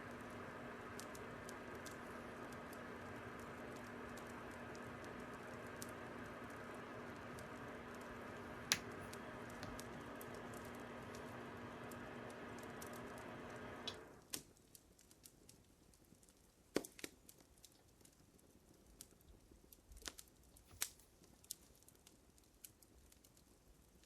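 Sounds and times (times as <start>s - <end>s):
steady hum: 0.0s - 14.2s
fire crackling: 0.0s - 24.0s.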